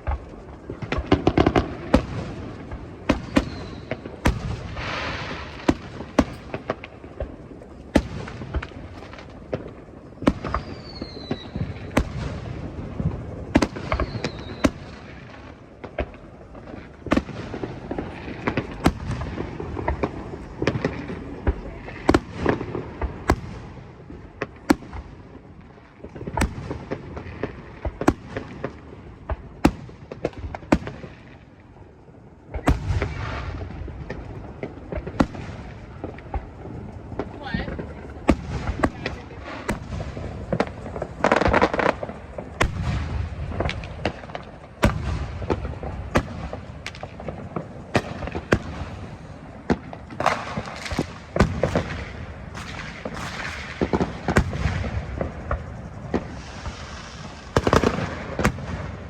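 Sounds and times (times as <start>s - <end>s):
fireworks bangs and crackling: 0.0s - 59.0s
falling firework whistles: 0.8s - 6.8s, 7.8s - 16.1s, 32.4s - 59.0s.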